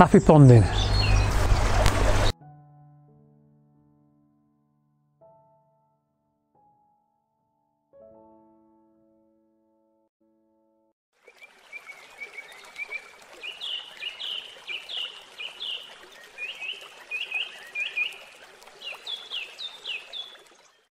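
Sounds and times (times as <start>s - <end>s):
songbird chirping: 0.3s - 2.3s, 11.3s - 20.9s.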